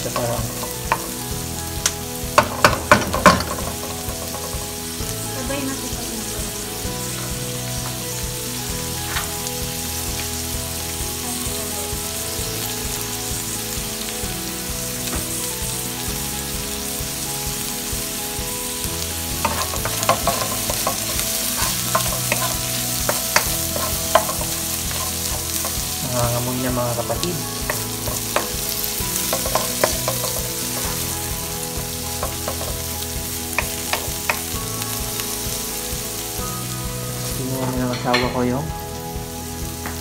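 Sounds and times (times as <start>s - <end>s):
food sizzling in hot oil: 0.0s - 40.0s
utensil knocking against pan: 2.4s - 4.7s, 19.4s - 25.8s, 29.2s - 31.0s.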